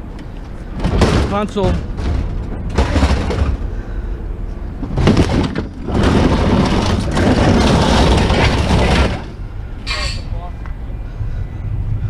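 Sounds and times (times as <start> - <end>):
low rumble: 0.0 - 12.0
scrap metal crashing onto pile: 0.8 - 3.6, 5.0 - 9.4.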